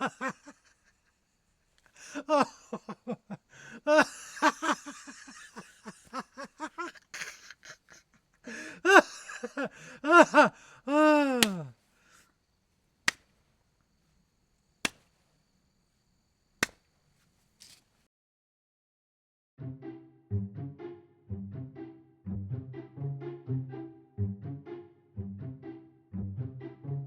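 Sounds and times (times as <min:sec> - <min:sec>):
person laughing: 0:00.0 - 0:01.2, 0:01.9 - 0:11.7
sharp single clicks: 0:13.0 - 0:13.4, 0:14.8 - 0:15.2, 0:16.6 - 0:16.9.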